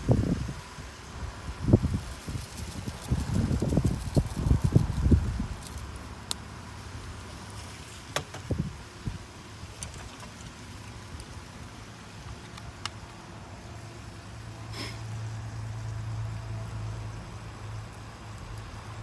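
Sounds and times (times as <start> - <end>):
campfire pops and crackles: 2.4 - 6.5, 9.6 - 11.6, 12.2 - 13.2, 17.3 - 19.0.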